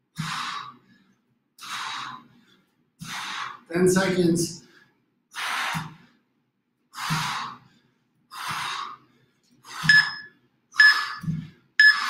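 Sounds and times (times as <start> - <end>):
person exhaling forcefully: 0.2 - 0.7, 7.0 - 7.6
short electronic beep: 9.9 - 11.2, 11.8 - 12.0.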